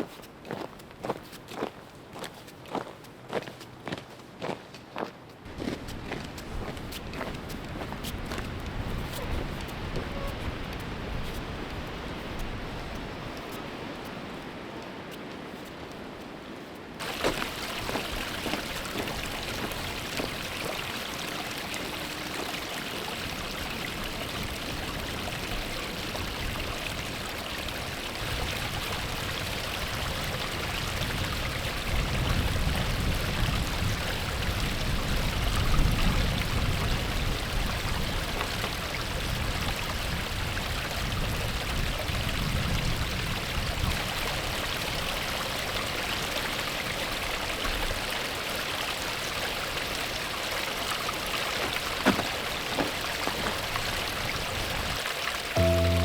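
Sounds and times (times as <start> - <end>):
stream rushing: 6.1 - 31.2.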